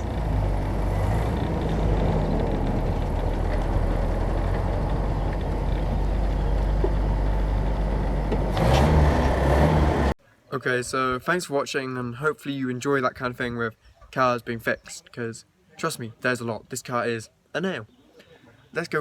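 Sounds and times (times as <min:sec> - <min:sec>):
engine drone: 0:00.0 - 0:10.2
road noise: 0:00.0 - 0:10.2.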